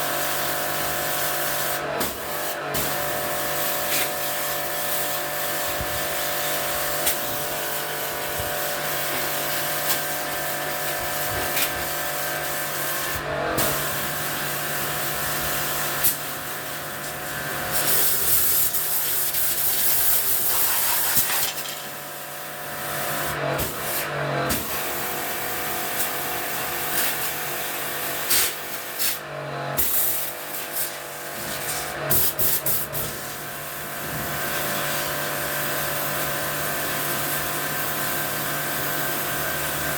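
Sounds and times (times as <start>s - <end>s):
pressure washer pump humming: 0.0s - 39.9s
water jet hissing: 13.7s - 21.8s.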